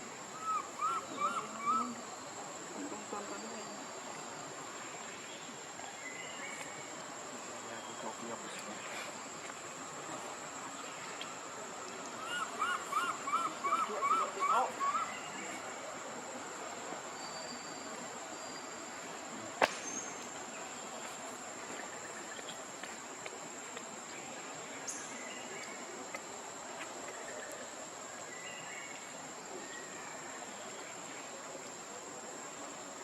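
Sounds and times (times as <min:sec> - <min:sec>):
background hiss: 0:00.0 - 0:33.0
insects droning: 0:00.0 - 0:33.0
faint chirps: 0:10.0 - 0:22.7.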